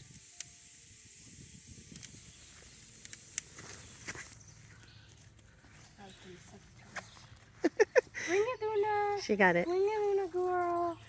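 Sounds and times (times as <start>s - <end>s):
steady high hiss: 0.0s - 4.6s.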